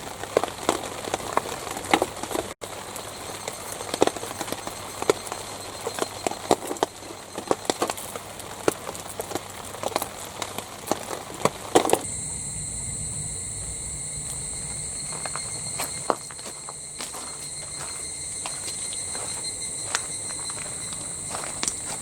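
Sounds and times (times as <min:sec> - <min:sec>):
high insect drone: 0:02.6 - 0:09.2, 0:12.0 - 0:22.0.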